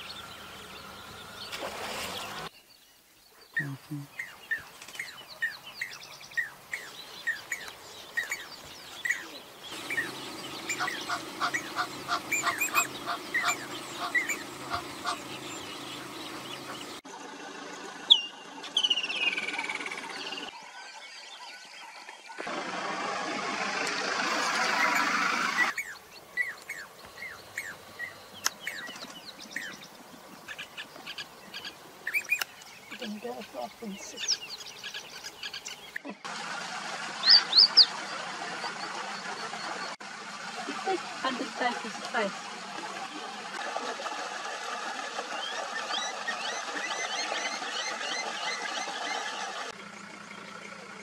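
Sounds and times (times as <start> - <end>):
small birds chirping: 0.0 - 17.0, 24.6 - 36.2.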